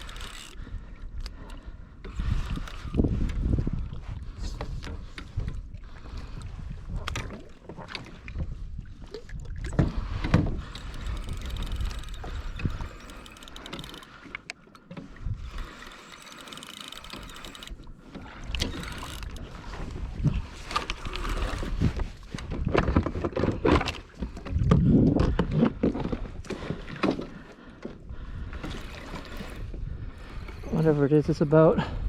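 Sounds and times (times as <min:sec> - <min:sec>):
wind on microphone: 0:00.0 - 0:14.0, 0:15.1 - 0:15.8, 0:17.0 - 0:27.0
knocks and clicks from boat: 0:00.0 - 0:31.0
water washing against hull: 0:00.0 - 0:31.5.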